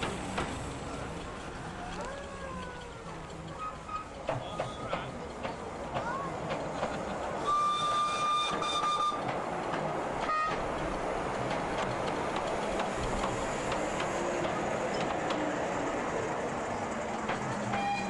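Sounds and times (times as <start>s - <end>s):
train running noise: 0.0s - 18.0s
steam locomotive whistle: 7.4s - 9.3s, 17.7s - 18.0s.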